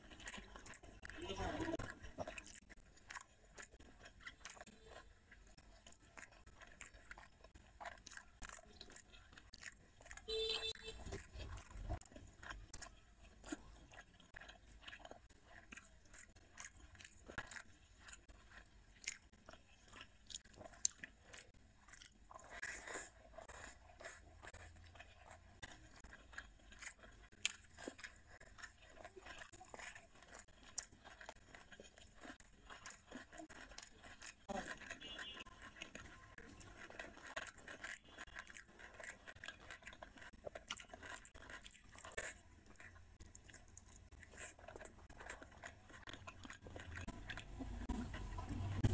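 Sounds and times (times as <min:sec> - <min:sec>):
person chewing food: 0:00.0 - 0:48.9.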